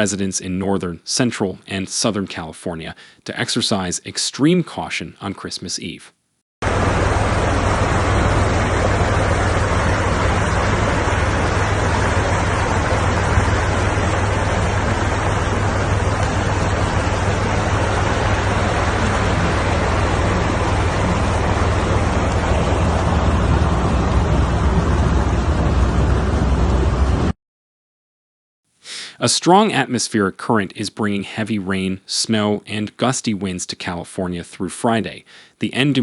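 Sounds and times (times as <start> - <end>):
floodwater rushing: 6.6 - 27.3
low rumble: 6.6 - 27.4.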